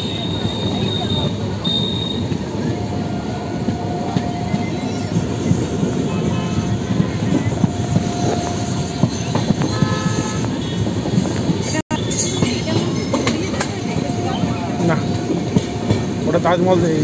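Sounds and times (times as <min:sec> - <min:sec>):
train running rumble: 0:00.0 - 0:17.0
wheels clacking over rails: 0:03.6 - 0:17.0.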